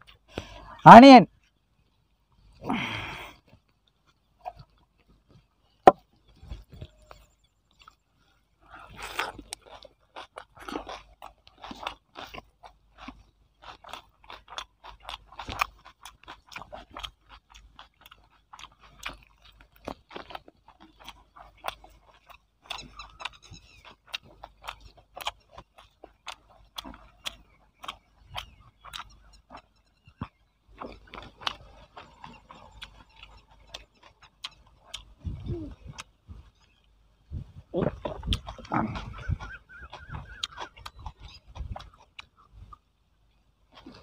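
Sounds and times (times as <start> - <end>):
person chewing and crunching: 0.0 - 44.0
wet mouth smacks and clicks: 38.0 - 42.5.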